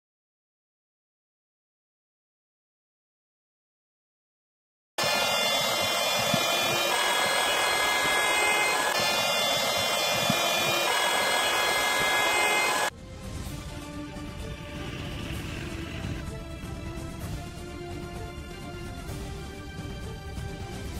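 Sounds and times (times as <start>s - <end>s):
electric air pump running: 5.0s - 12.9s, 14.4s - 16.2s.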